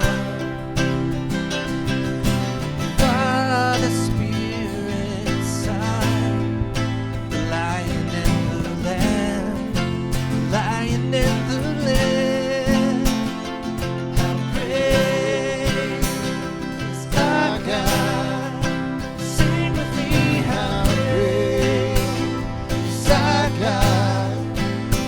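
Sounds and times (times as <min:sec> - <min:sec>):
bass line: 0:00.0 - 0:25.0
strummed acoustic guitar: 0:00.0 - 0:25.0
person singing long notes: 0:17.1 - 0:24.9.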